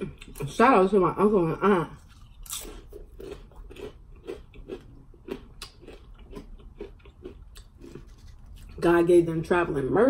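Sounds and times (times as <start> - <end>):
chewing crunchy tortilla chip: 2.0 - 8.8.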